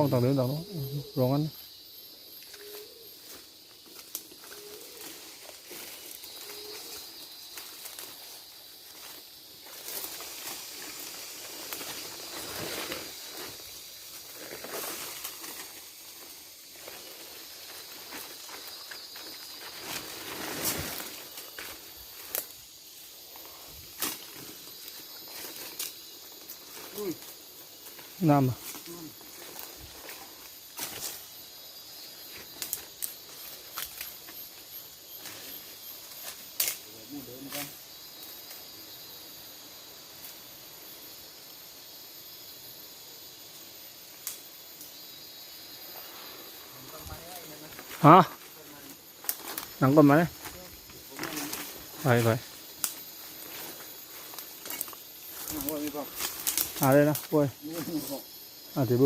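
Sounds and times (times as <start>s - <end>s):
forest insects buzzing: 0.0s - 59.0s
footsteps rustling through leaves: 2.7s - 23.2s.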